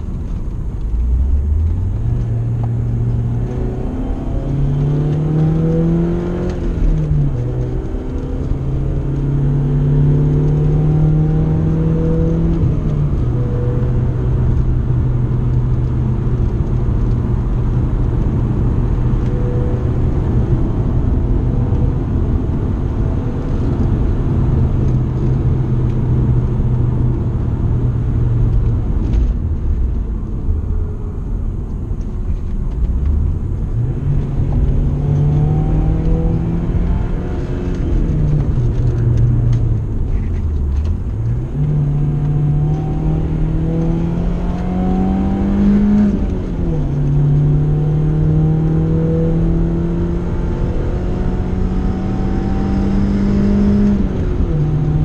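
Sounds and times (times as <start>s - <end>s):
car engine accelerating and shifting: 0.0s - 55.0s.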